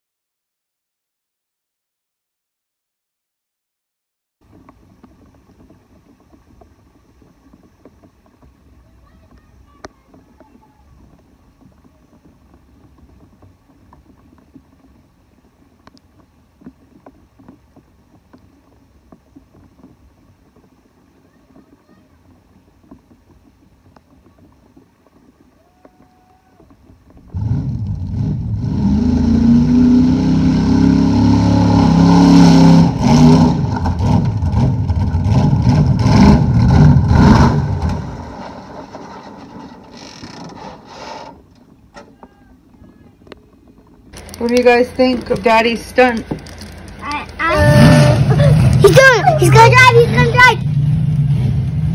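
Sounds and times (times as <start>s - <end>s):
truck engine revving: 27.4s - 39.9s, 44.2s - 51.9s.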